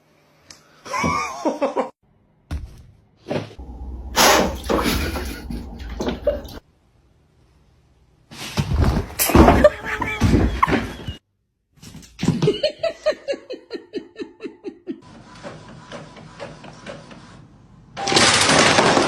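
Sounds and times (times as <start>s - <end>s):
person laughing: 0.9s - 2.0s, 4.7s - 6.6s, 9.3s - 10.9s, 12.4s - 15.0s.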